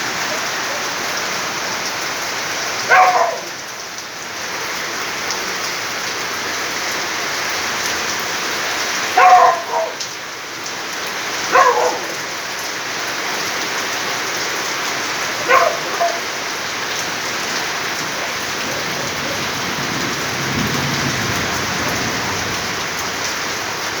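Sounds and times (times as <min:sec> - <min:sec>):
heavy rain falling: 0:00.0 - 0:24.0
dog barking: 0:02.8 - 0:03.6, 0:09.1 - 0:10.1, 0:11.4 - 0:12.3, 0:15.3 - 0:16.5
thunder rumble: 0:18.0 - 0:23.8.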